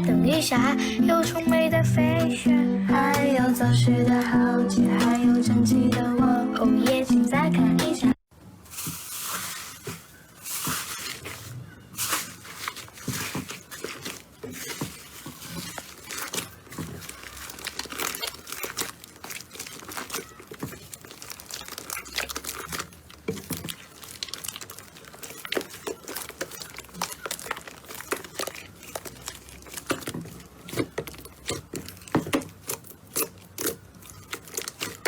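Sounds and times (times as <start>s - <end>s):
slime squished by hand: 8.7s - 35.0s.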